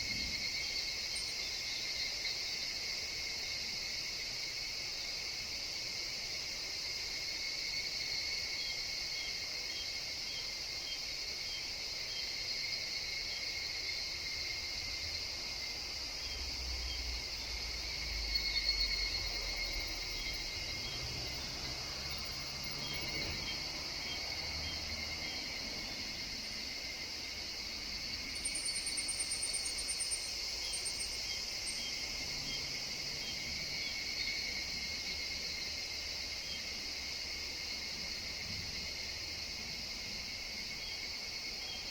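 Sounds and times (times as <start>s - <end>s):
insects chirping: 0.0s - 41.9s.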